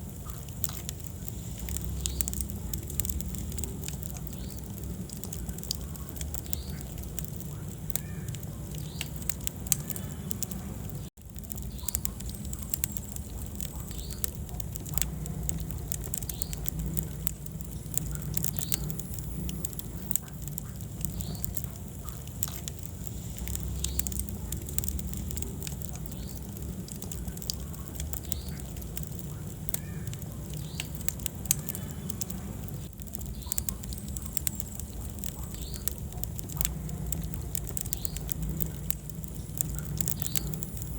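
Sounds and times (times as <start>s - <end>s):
fire crackling and popping: 0.0s - 40.9s
low rumble of flame: 0.0s - 40.9s.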